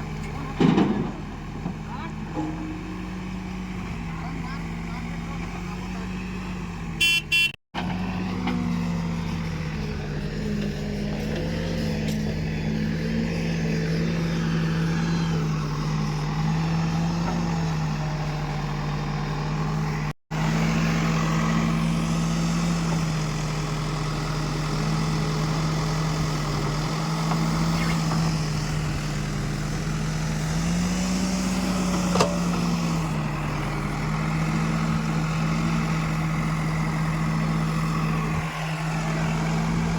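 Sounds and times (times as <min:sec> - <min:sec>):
diesel engine running: 0:00.0 - 0:39.9
short horn-like tone: 0:07.0 - 0:07.6.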